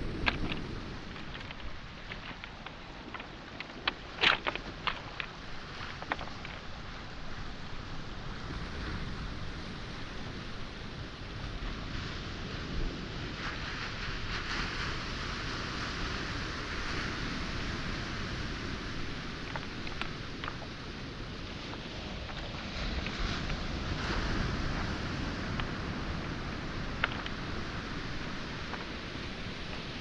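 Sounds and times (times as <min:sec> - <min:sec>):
pebble clicks: 0:00.0 - 0:07.4, 0:19.4 - 0:20.8, 0:25.5 - 0:30.0
waves washing onto pebbles: 0:00.0 - 0:30.0.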